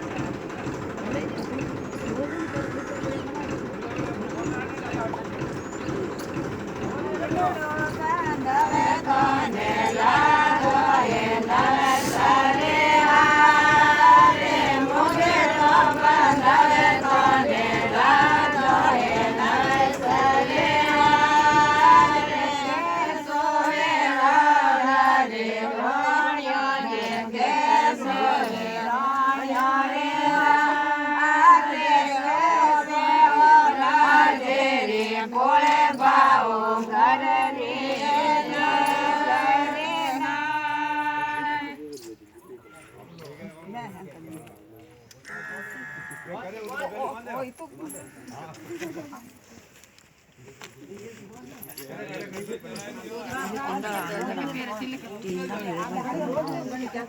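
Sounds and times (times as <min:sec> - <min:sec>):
women singing in chorus: 0:07.3 - 0:41.9.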